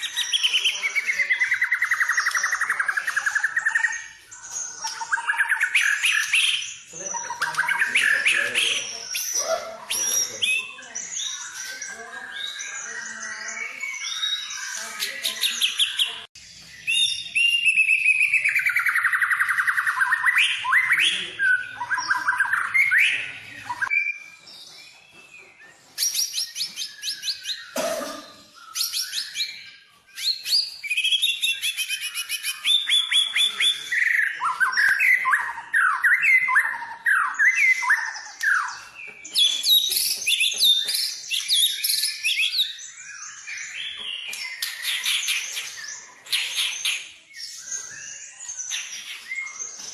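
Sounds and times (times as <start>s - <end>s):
bird singing trills and whistles: 0.0s - 49.9s.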